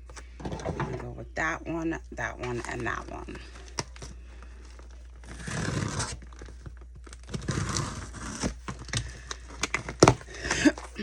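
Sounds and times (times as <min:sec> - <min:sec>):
packaging tearing and crinkling: 0:02.9 - 0:10.9.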